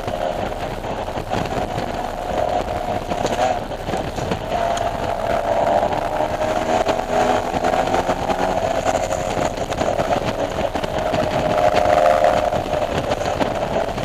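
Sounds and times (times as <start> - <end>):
car engine at high revs: 0.0 - 14.0
wind and road noise: 0.0 - 14.0.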